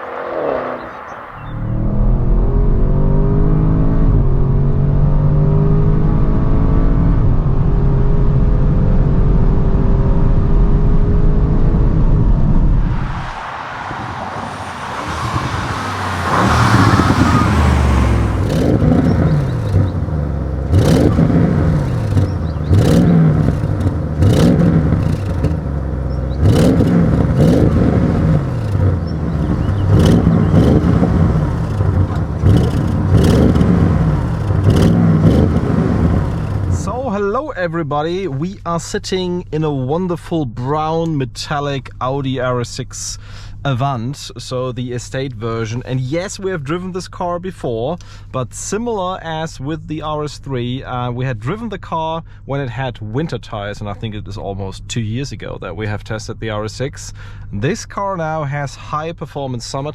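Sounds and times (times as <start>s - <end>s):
exhaust cracks: 0.0s - 3.1s, 12.6s - 37.4s
car engine revving: 0.0s - 37.2s.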